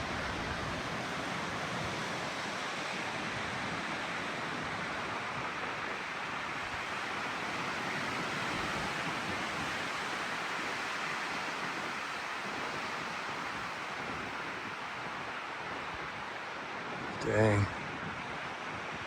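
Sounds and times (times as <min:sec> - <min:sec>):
strong wind rushing through trees: 0:00.0 - 0:19.0.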